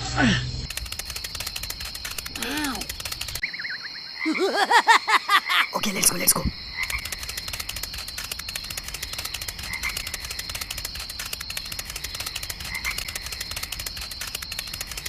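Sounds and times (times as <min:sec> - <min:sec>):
fast clicking rattle: 0:00.6 - 0:03.4, 0:06.8 - 0:15.0.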